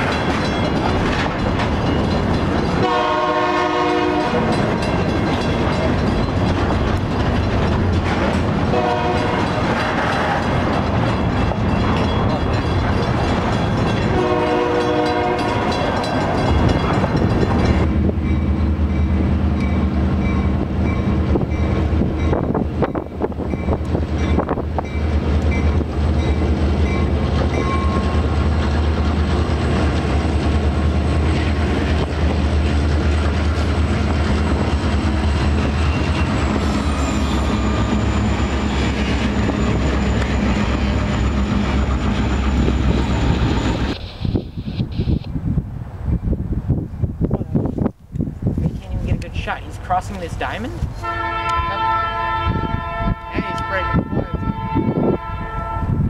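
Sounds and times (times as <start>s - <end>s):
moving train rumble and clatter: 0.0s - 56.0s
locomotive air horn blasts: 2.8s - 4.5s, 8.7s - 9.4s, 14.1s - 15.7s, 51.0s - 56.0s.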